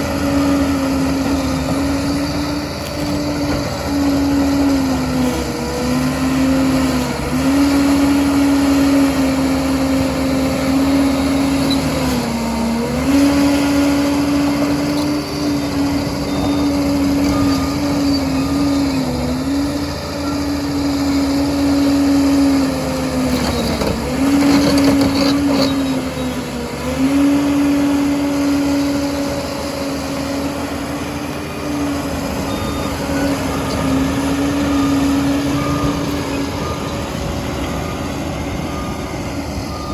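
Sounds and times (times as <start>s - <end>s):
dozer diesel engine under load: 0.0s - 39.9s.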